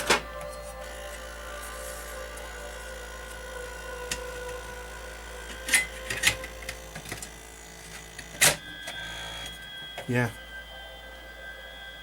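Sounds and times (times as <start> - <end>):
disc drive whining: 0.0 - 12.0.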